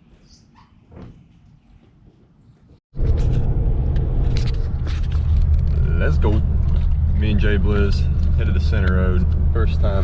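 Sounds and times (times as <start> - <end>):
road vehicle rumbling: 2.9 - 10.0.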